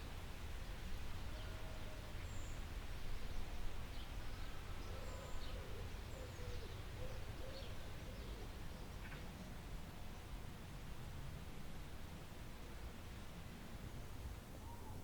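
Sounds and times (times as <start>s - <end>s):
low wavering bird calls: 1.2s - 9.4s, 14.6s - 15.0s.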